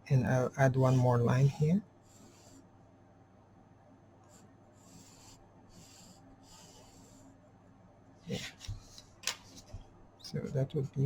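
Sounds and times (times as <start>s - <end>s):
pencil scratching on paper: 0.8s - 2.6s, 4.2s - 7.3s.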